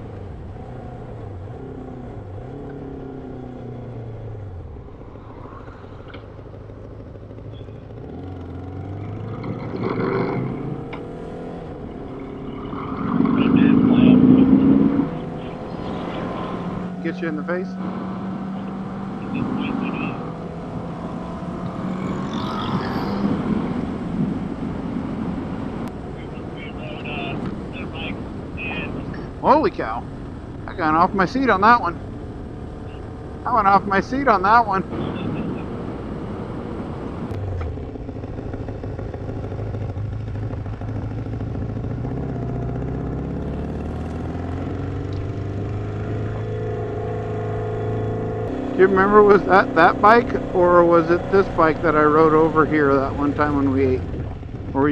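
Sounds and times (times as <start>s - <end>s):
motorcycle engine running: 0.0s - 25.4s, 37.3s - 54.9s
wind rushing over microphone: 52.9s - 54.9s.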